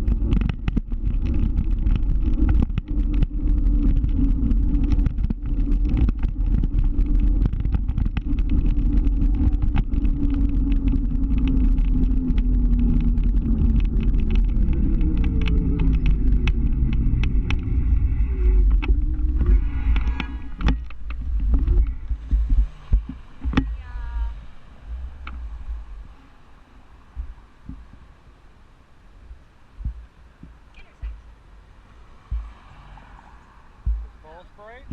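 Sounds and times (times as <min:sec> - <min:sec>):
scooter engine running: 0:00.0 - 0:24.3
wind rumble on microphone: 0:00.0 - 0:34.9
sharp knocks: 0:33.8 - 0:34.2.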